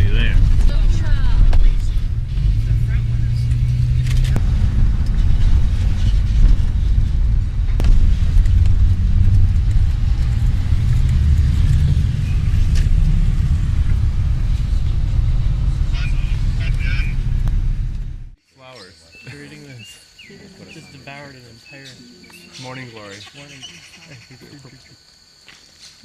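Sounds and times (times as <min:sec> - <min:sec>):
low rumble: 0:00.0 - 0:18.4.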